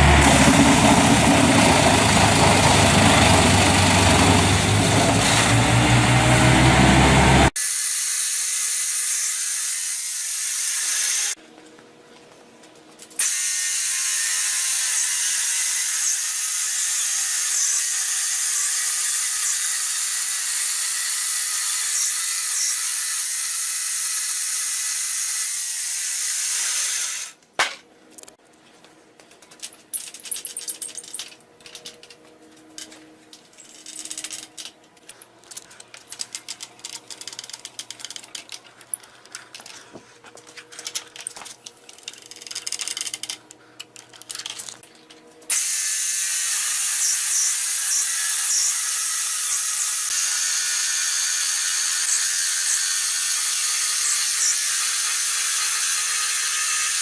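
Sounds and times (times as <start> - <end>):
wood-cutting machine grinding: 0.0 - 11.4, 45.5 - 57.0
clicks and rattles: 29.2 - 45.2.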